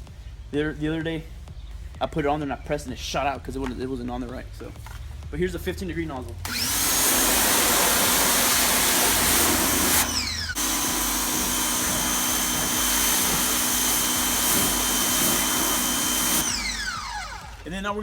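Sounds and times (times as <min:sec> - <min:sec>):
motor winding down whine: 0:06.4 - 0:17.9
pressure washer running: 0:06.4 - 0:18.0
water jet spraying: 0:06.5 - 0:17.8.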